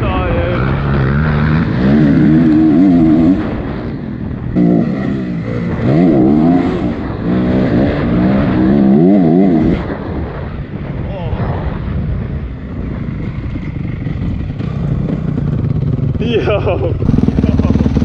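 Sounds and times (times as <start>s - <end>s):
dirt bike engine revving: 0.0s - 10.1s, 12.8s - 18.0s
track rumble: 0.0s - 18.0s
wind: 0.0s - 18.0s.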